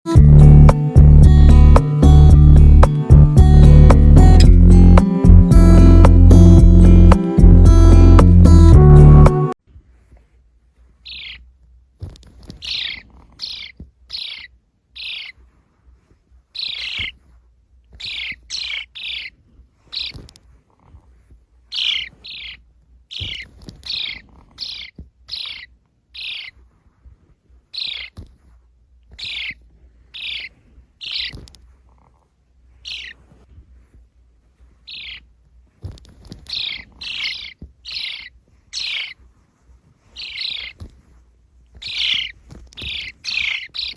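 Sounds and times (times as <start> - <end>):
sparrows chirping: 0.1 - 9.3, 11.0 - 11.5, 12.4 - 15.5, 16.6 - 17.2, 17.9 - 20.4, 21.7 - 26.6, 27.7 - 28.3, 29.1 - 31.6, 32.8 - 33.2, 34.8 - 35.3, 36.0 - 39.2, 40.0 - 41.0, 41.8 - 43.9.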